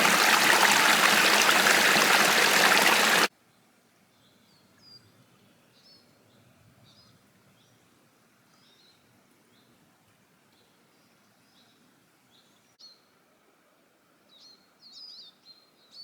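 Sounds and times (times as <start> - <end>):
stream running loudly: 0.0 - 3.3.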